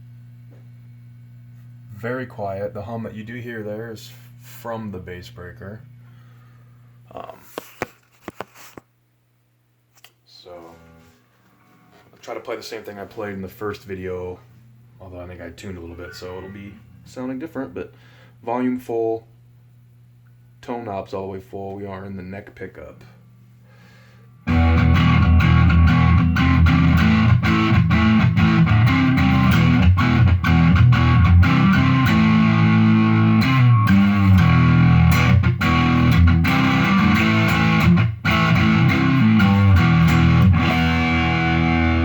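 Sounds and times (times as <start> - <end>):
faint amp hum: 0.0 - 42.0
electric guitar riff: 24.4 - 42.0.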